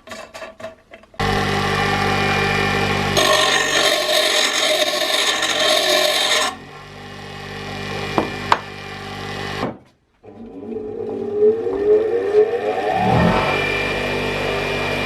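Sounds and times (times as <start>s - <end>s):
metal grinding on grinder stone: 0.0s - 6.6s, 10.5s - 15.0s
grinder motor hum and whine: 1.2s - 9.6s, 10.2s - 15.0s.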